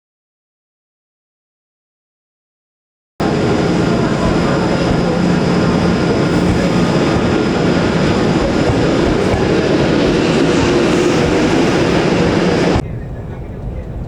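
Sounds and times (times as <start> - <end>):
electric train running: 3.2 - 12.8.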